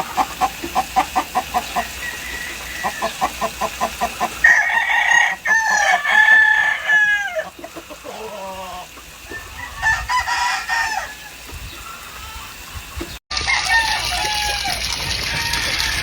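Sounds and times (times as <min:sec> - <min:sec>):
chicken clucking: 0:00.0 - 0:13.2
rooster crowing: 0:01.7 - 0:03.5, 0:04.4 - 0:11.4, 0:13.3 - 0:16.0.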